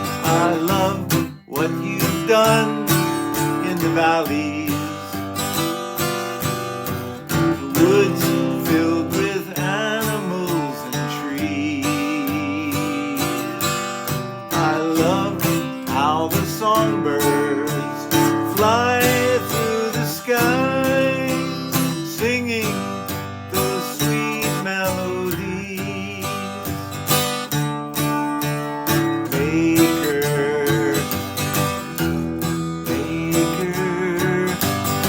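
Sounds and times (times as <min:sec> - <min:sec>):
strummed acoustic guitar: 0:00.0 - 0:35.0.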